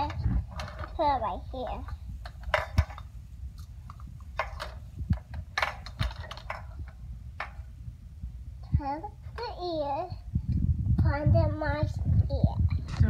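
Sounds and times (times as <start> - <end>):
plastic toys clicking and rustling: 0.0 - 7.7
low steady hum: 0.0 - 13.0.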